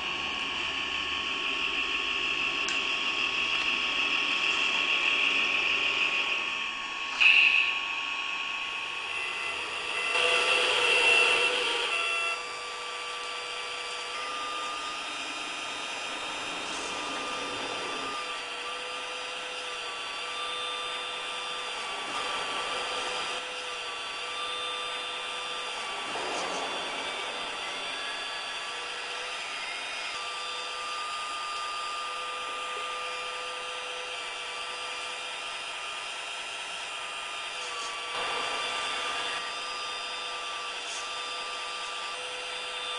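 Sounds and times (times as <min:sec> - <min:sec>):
small electric motors whining: 0:00.0 - 0:42.9.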